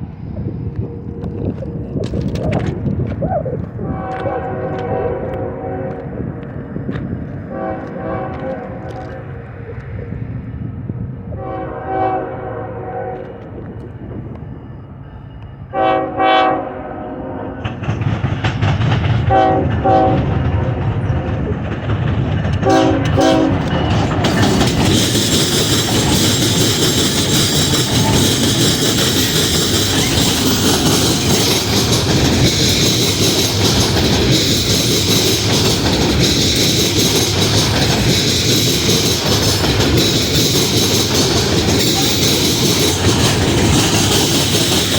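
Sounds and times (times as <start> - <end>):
train wheels clattering on rails: 0.0 - 10.8, 17.6 - 44.9
train horn blasts: 3.8 - 6.4, 7.4 - 9.6, 11.3 - 13.6, 15.7 - 17.8, 19.2 - 21.0, 22.6 - 23.9.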